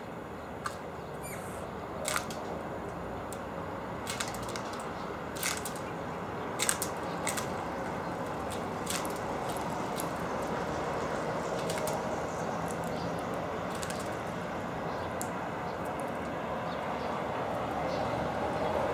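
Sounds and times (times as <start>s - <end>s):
steady background hum: 0.0s - 18.9s
birds pecking and cracking seeds: 0.5s - 16.4s
faint short bird chirp: 1.2s - 1.6s.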